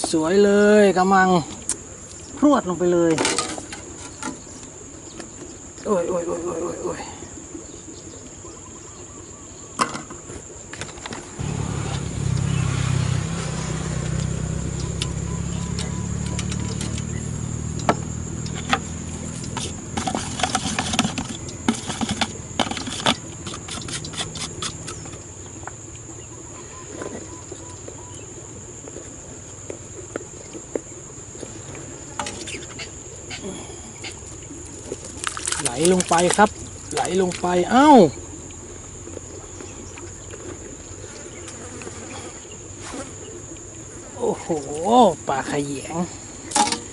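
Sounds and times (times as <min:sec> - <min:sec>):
insects droning: 0:00.0 - 0:46.9
low motor hum: 0:11.4 - 0:29.8.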